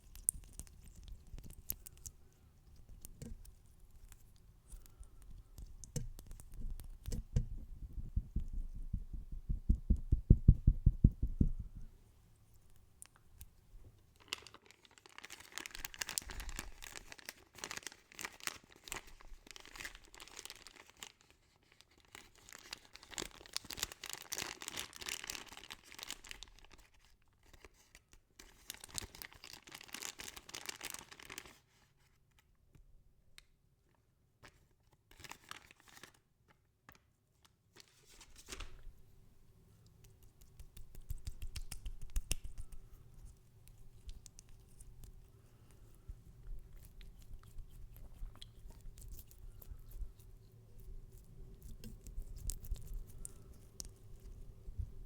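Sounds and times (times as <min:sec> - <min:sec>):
crinkly rustling and scratching: 0:00.0 - 0:08.5, 0:13.8 - 0:32.6, 0:33.8 - 0:39.1, 0:40.2 - 0:55.0
muffled fingertip taps: 0:05.8 - 0:11.8.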